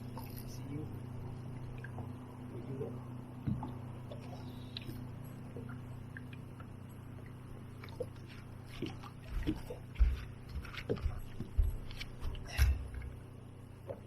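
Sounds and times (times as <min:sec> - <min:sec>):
boat engine low hum: 0:00.0 - 0:14.0
knocks and thumps against boat: 0:03.4 - 0:04.2, 0:08.7 - 0:13.2.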